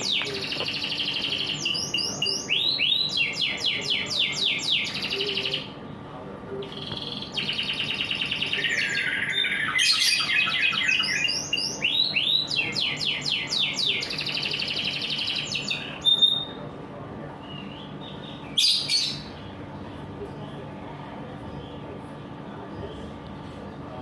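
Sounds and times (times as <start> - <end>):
canary singing trills: 0.0 - 6.0, 6.6 - 16.6, 17.4 - 19.7.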